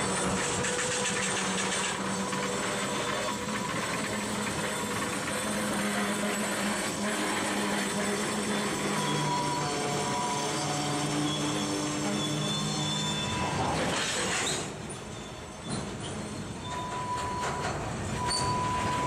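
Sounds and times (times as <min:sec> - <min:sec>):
steady tones from train: 0:00.0 - 0:19.0
steel wheels rushing on rail: 0:00.0 - 0:19.0.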